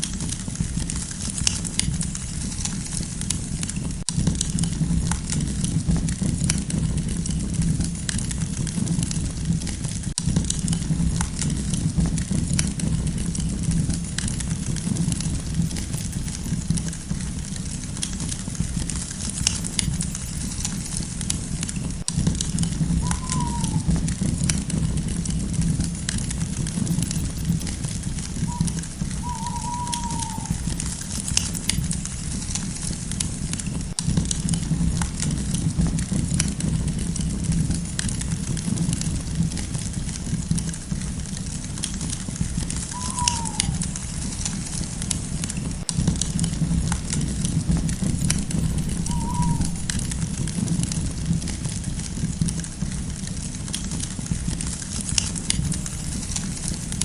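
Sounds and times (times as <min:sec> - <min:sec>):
low rumble of flames: 0:00.0 - 0:57.0
crackles and pops of burning wood: 0:30.7 - 0:42.8, 0:49.9 - 0:57.0.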